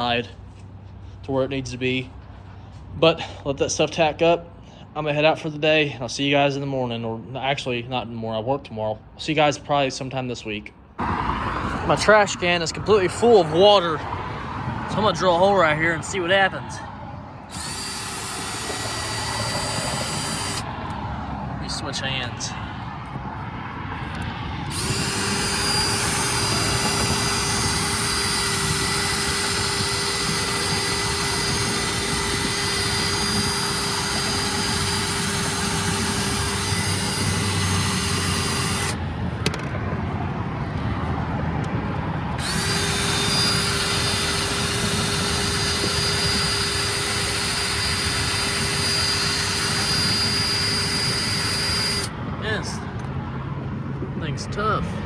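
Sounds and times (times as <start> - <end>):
power drill whining: 17.4 - 21.0, 24.1 - 39.0, 42.3 - 52.2.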